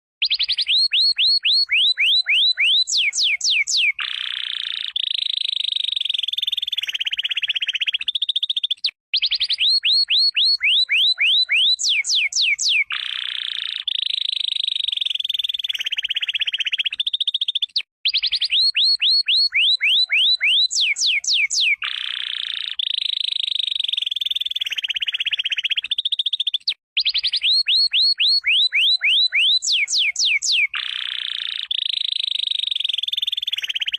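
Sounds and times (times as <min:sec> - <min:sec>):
canary singing trills: 0:00.2 - 0:33.9.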